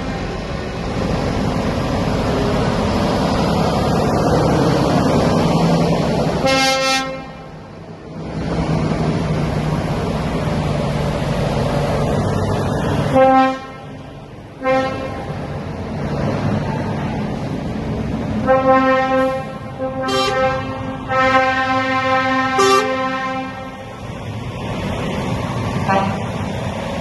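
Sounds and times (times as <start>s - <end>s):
trucks running: 0.0s - 27.0s
truck air horn blasts: 6.4s - 7.5s, 13.1s - 14.0s, 14.6s - 15.3s, 18.4s - 23.8s, 25.8s - 26.4s.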